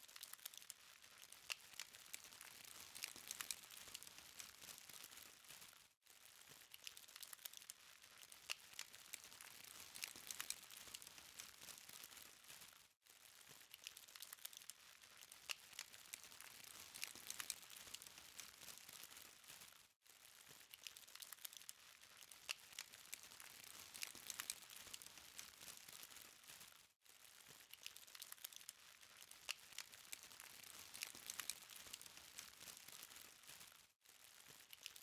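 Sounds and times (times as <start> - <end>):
charcoal crackling with ticks: 0.0 - 5.8, 6.4 - 12.6, 13.4 - 19.7, 20.4 - 26.8, 27.4 - 35.0.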